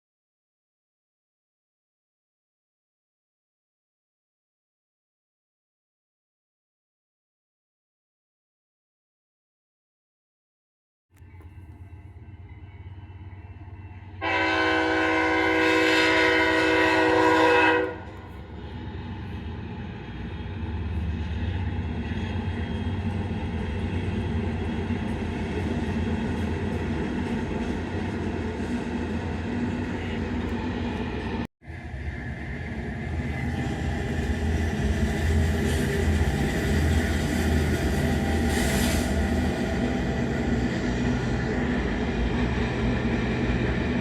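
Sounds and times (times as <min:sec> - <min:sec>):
train rumbling: 0:11.2 - 0:44.0
locomotive air horn: 0:14.2 - 0:18.4, 0:38.4 - 0:39.5.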